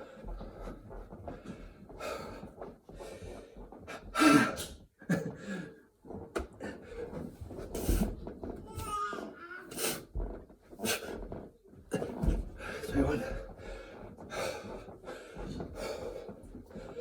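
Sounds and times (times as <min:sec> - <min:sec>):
man panting heavily: 0:12.6 - 0:17.0.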